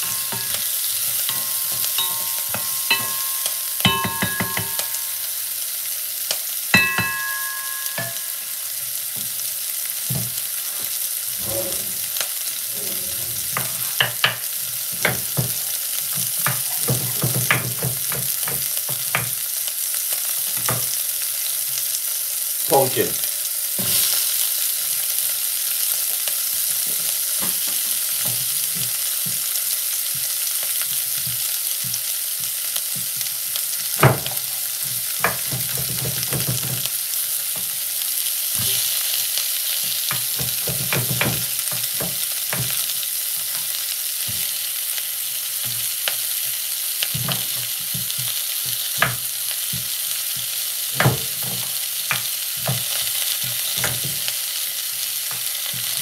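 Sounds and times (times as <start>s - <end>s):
vegetables sizzling in a pot: 0.0s - 56.0s.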